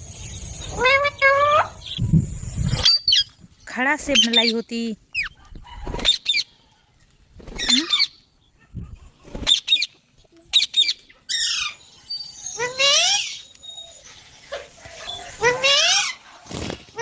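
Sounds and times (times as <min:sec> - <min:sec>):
parrots squawking: 0:10.5 - 0:13.5, 0:14.6 - 0:16.2.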